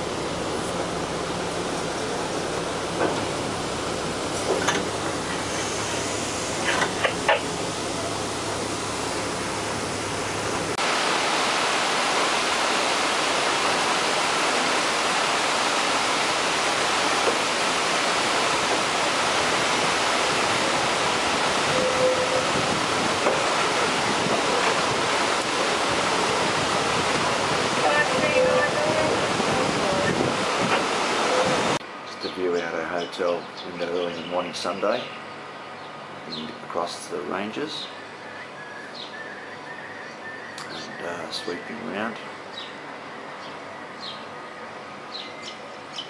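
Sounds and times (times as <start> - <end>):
steady rushing noise: 0.0 - 31.8
train rumbling: 0.0 - 46.0.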